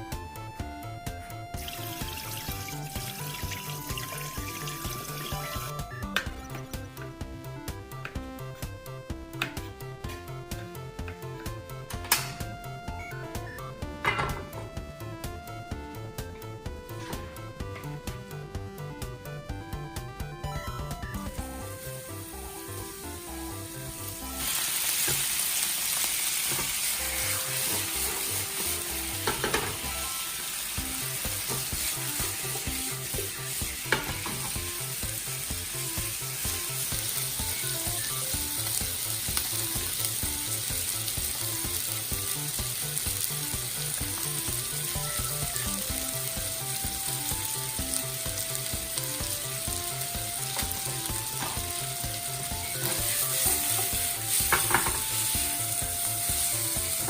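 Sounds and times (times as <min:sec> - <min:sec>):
chicken sizzling in a pan: 0:01.5 - 0:06.7, 0:20.8 - 0:57.0.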